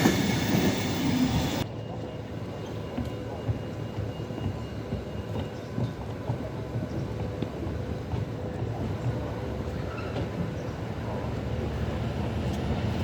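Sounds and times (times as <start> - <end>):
freight train wheels clattering: 0.0 - 2.0.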